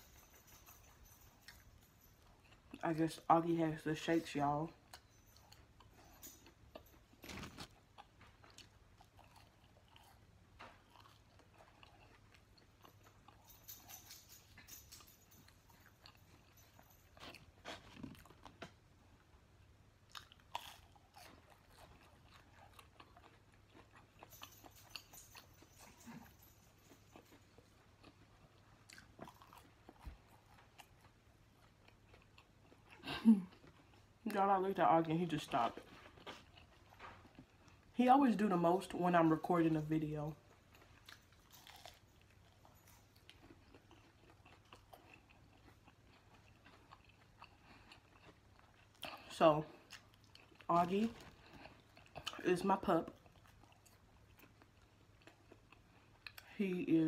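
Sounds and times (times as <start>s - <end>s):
chewing with soft crunches: 0.0s - 57.0s.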